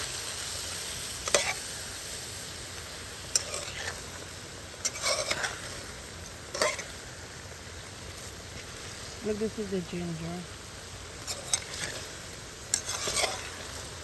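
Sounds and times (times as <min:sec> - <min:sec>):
chicken sizzling in a pot: 0:00.0 - 0:14.0
spoon scraping a pot: 0:04.8 - 0:05.7, 0:11.2 - 0:12.0, 0:12.7 - 0:13.7.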